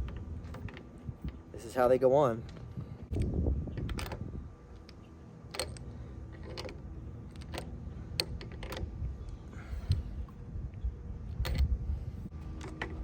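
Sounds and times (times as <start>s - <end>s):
metal parts clicking and clinking: 0.0s - 1.8s, 3.8s - 10.0s.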